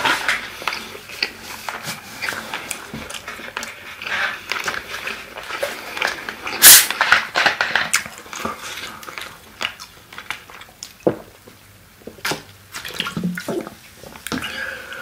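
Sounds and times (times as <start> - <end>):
wet chewing: 0.0 - 11.4.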